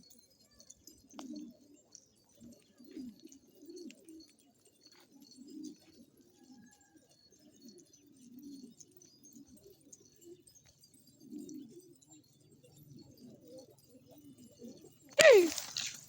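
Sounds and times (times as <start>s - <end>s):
pigeons cooing: 1.0s - 6.8s, 11.1s - 12.2s.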